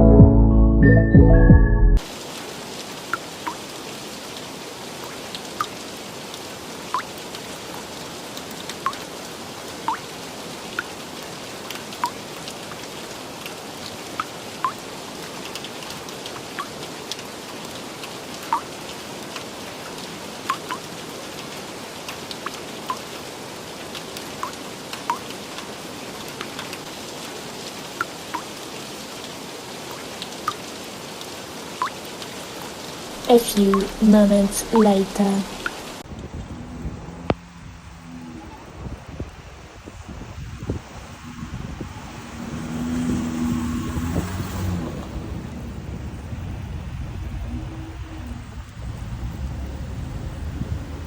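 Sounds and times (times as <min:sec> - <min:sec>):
steady rain hiss: 0:02.0 - 0:51.0
raindrops plinking: 0:03.0 - 0:03.7, 0:05.0 - 0:07.8, 0:08.6 - 0:09.2, 0:09.8 - 0:11.0, 0:11.6 - 0:17.8, 0:18.4 - 0:18.8, 0:20.4 - 0:20.9, 0:22.3 - 0:23.2, 0:24.2 - 0:25.7, 0:27.9 - 0:28.6, 0:31.8 - 0:32.2, 0:33.0 - 0:38.8.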